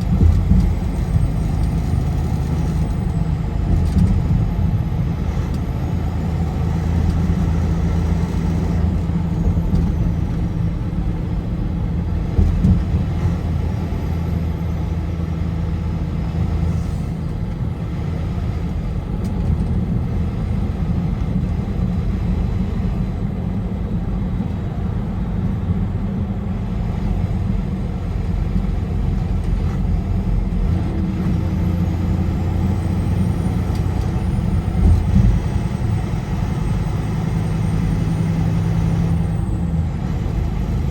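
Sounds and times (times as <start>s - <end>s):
car road noise: 0.0s - 40.9s
low engine hum: 0.0s - 40.9s.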